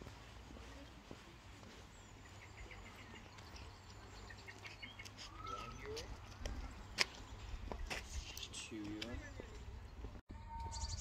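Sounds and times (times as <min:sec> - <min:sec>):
bird chirps: 0:01.7 - 0:07.5, 0:09.3 - 0:11.0
swooping whistled bird notes: 0:04.8 - 0:06.0, 0:10.4 - 0:11.0.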